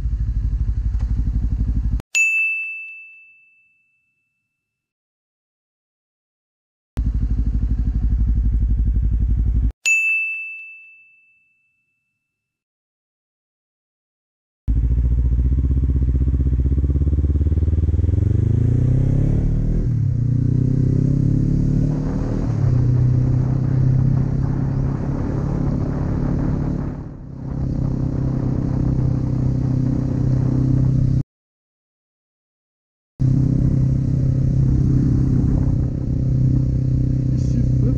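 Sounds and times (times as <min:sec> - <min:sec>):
motorcycle engine running: 0:00.0 - 0:02.0, 0:07.0 - 0:09.7, 0:14.7 - 0:31.2, 0:33.2 - 0:37.9
bell ding: 0:02.2 - 0:04.8, 0:09.8 - 0:12.5.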